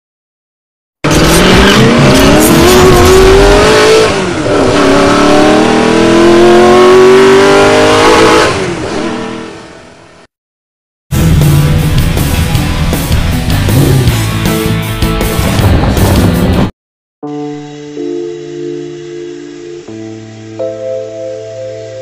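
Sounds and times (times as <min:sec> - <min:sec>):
car engine accelerating hard: 0:01.0 - 0:10.0, 0:13.4 - 0:14.3.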